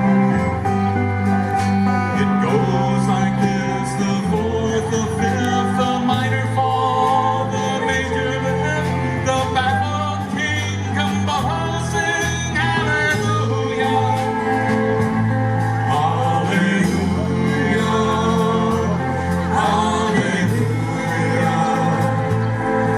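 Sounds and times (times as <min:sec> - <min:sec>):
bass line: 0:00.0 - 0:22.9
guitars: 0:00.0 - 0:22.9
person singing: 0:01.7 - 0:22.9
drums with cymbal strikes: 0:08.8 - 0:22.9.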